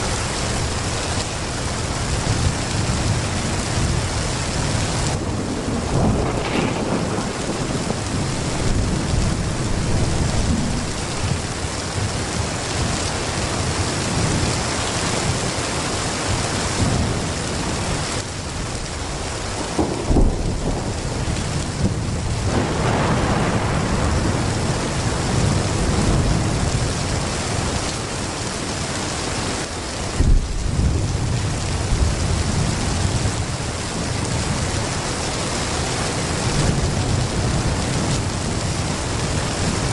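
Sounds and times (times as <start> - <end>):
low rolling thunder: 0.0 - 15.5, 16.2 - 28.2, 30.1 - 39.9
heavy rain pouring: 0.0 - 39.9
sharp thunder cracks: 5.3 - 9.3, 19.6 - 21.0, 21.7 - 24.4.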